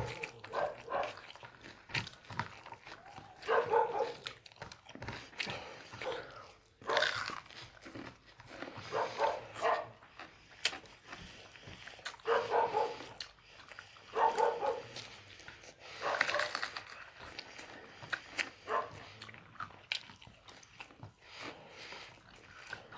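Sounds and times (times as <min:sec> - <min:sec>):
dog vocalising: 0:00.0 - 0:01.4, 0:03.1 - 0:04.3, 0:08.8 - 0:10.0, 0:12.2 - 0:13.2, 0:14.1 - 0:15.0, 0:18.6 - 0:19.2.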